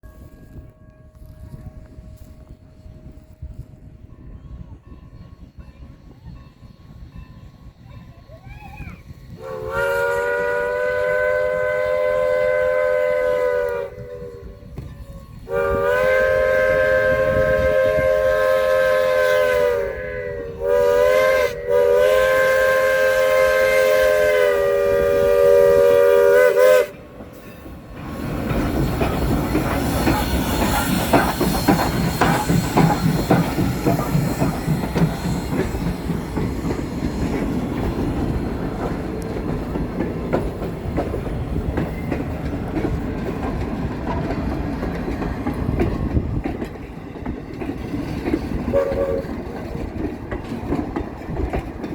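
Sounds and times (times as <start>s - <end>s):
steam locomotive chime whistle: 0.0s - 28.0s, 48.7s - 49.6s
train rumble: 0.0s - 51.9s
wheels clattering over rails: 26.9s - 51.9s.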